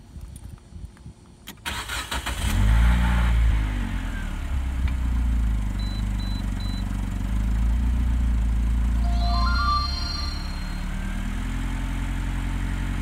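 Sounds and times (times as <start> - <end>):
short high beeps: 9.0 - 11.4.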